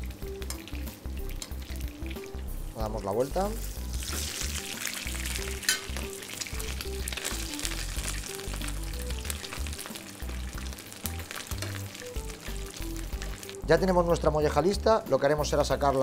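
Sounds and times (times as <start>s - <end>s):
meat sizzling in a frying pan: 0.0s - 16.0s
metal spoon basting: 3.9s - 13.5s.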